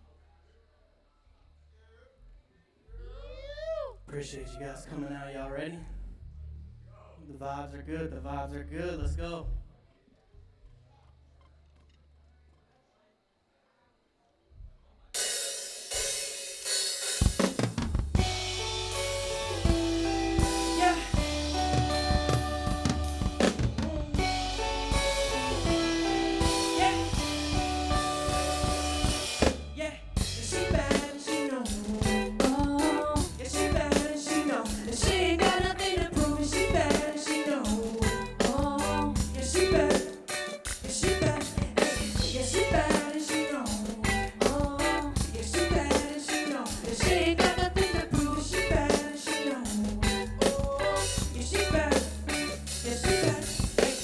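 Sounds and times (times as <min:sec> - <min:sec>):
drum kit beat: 0:15.2 - 0:54.0
live band music: 0:15.8 - 0:54.0
bass line: 0:17.3 - 0:37.1, 0:37.7 - 0:40.0, 0:40.7 - 0:43.0, 0:43.6 - 0:46.1, 0:46.8 - 0:49.1, 0:49.7 - 0:54.0
wavering lead melody: 0:18.2 - 0:40.0.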